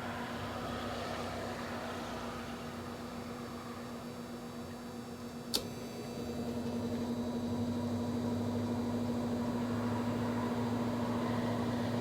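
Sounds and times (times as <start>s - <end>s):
electric fan motor humming: 2.6s - 12.0s.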